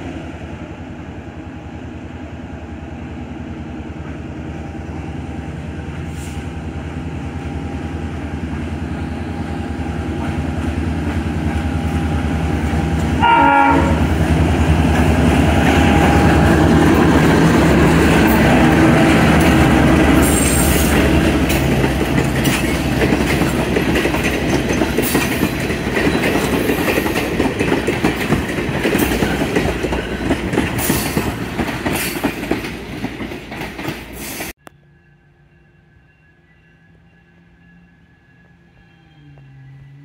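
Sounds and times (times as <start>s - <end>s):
diesel locomotive engine: 0.0s - 40.0s
train wheels clicking over rail joints: 14.4s - 34.5s.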